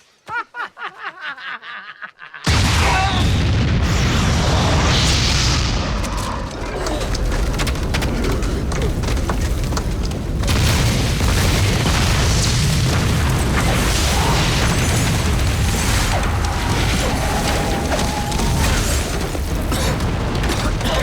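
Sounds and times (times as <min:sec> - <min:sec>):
heavy blast rumbling: 0:02.5 - 0:21.0.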